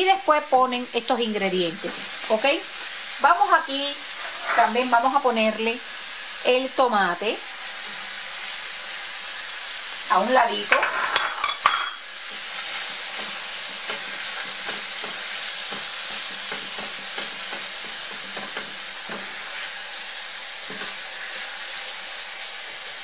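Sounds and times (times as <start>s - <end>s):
meat sizzling in frying pan: 0.0s - 23.0s
spatula scraping pan: 3.8s - 5.1s, 10.6s - 11.7s.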